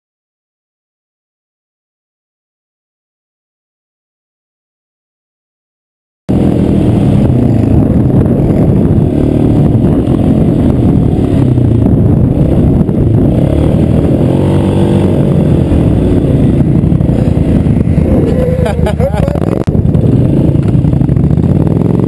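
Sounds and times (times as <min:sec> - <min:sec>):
go-kart engine revving: 0:06.3 - 0:22.0.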